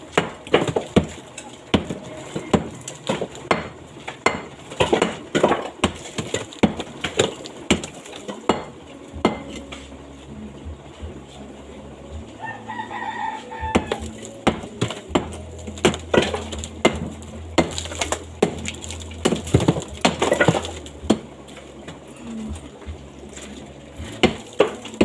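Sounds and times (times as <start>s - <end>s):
low steady hum: 0.0s - 25.0s
rooster crowing: 12.4s - 14.2s.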